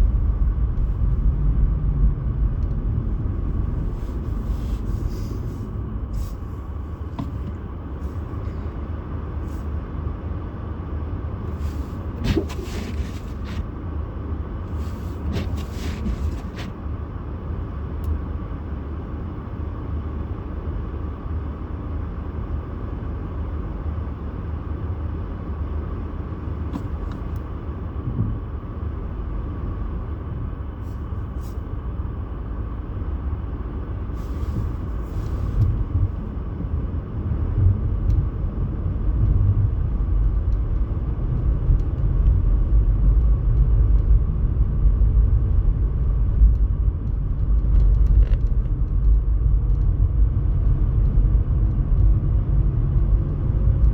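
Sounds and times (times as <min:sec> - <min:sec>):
road vehicle driving rumble: 0:00.0 - 0:53.9
rustling noise: 0:03.5 - 0:08.4, 0:11.5 - 0:13.7, 0:14.7 - 0:16.8, 0:34.2 - 0:36.2.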